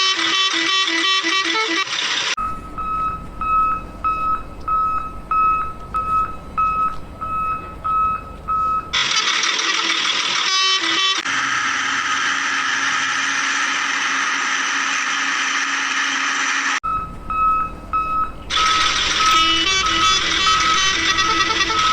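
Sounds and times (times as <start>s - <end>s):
reversing alarm beeping: 0.0s - 11.6s, 16.8s - 21.9s
low engine rumble: 0.0s - 15.9s, 16.7s - 21.9s
noisy vehicle with low hum: 0.0s - 21.9s.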